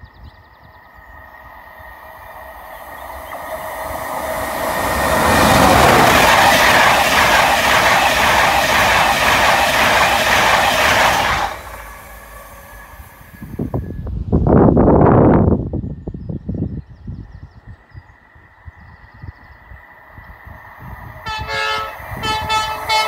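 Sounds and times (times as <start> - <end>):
gusty rustling noise: 3.4 - 17.4.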